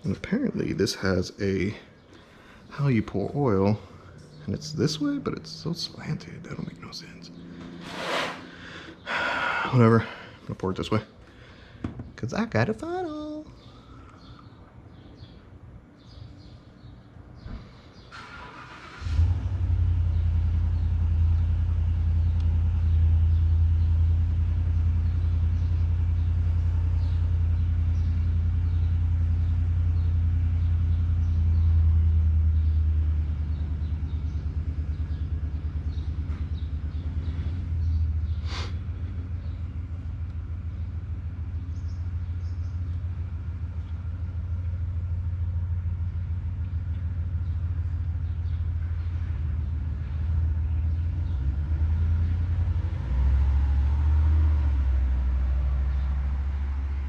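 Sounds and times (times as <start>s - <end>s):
engine starting and running: 17.4s - 57.0s.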